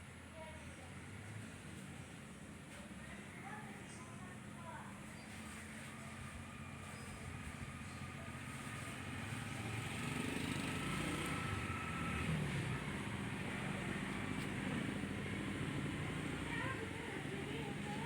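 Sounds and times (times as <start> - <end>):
vehicle engine running: 5.3 - 18.0.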